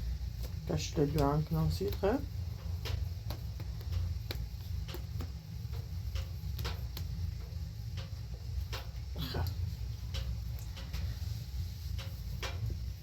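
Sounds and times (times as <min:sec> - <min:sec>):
steady low rumble: 0:00.0 - 0:13.0
sharp taps and clicks: 0:00.4 - 0:08.1.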